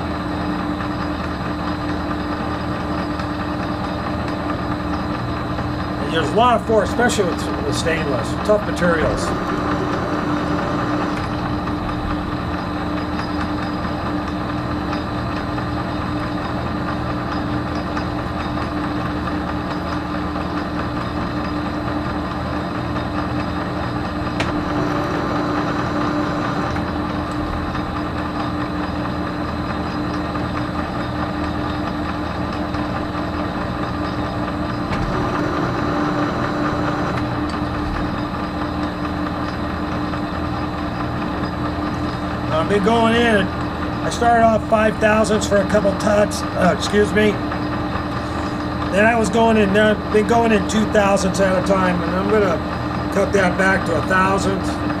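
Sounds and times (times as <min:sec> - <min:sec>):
metal lathe humming: 0:05.8 - 0:16.8, 0:23.4 - 0:55.0.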